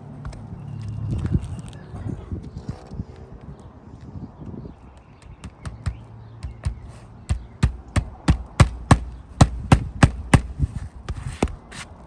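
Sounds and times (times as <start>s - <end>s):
hammer striking nail into shingles: 5.4s - 11.6s.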